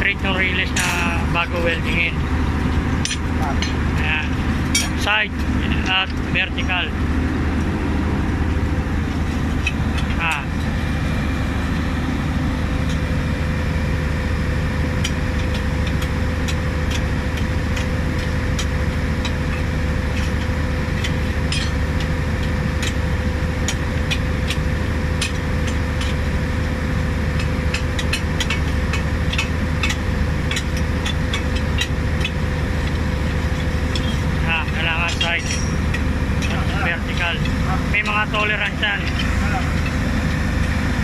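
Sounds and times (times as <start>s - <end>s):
large engine running: 0.0s - 41.0s
sharp metallic clicks: 27.3s - 40.8s.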